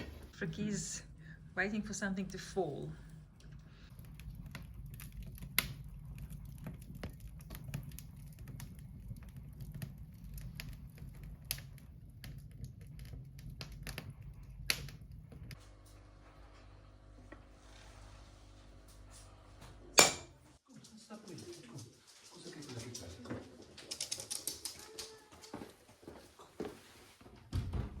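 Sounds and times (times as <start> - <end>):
low steady hum: 0.0 - 17.4.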